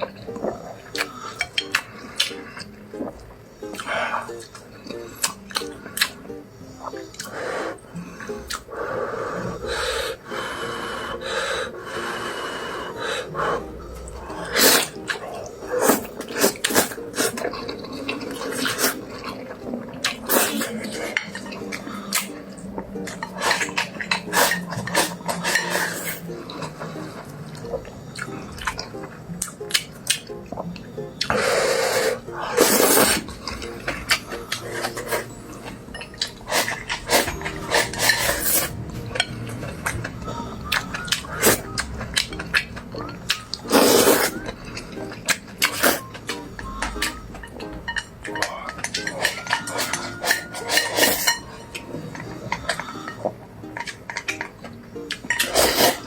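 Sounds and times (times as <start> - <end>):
utensils scraping against dishes: 23.0 - 27.2, 31.3 - 40.0, 46.9 - 54.5, 55.1 - 56.0.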